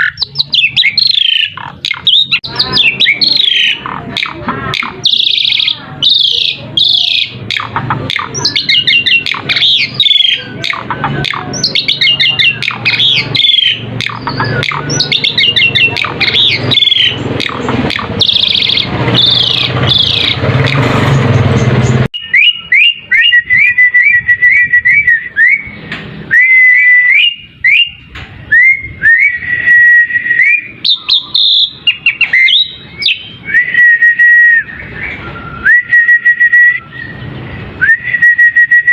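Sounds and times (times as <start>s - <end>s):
bird whistles: 0.0s - 20.8s, 22.2s - 38.9s
starling chattering and squeaking: 0.0s - 22.1s.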